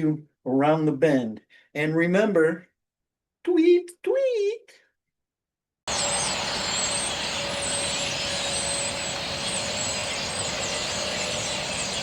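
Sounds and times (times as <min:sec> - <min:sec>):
flock of birds chirping: 0:05.9 - 0:12.0.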